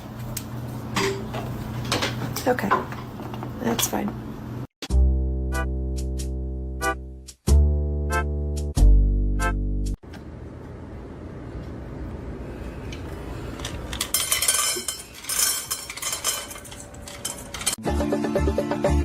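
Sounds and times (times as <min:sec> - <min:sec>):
dishes and cutlery clinking: 0:00.9 - 0:04.0, 0:13.6 - 0:17.8.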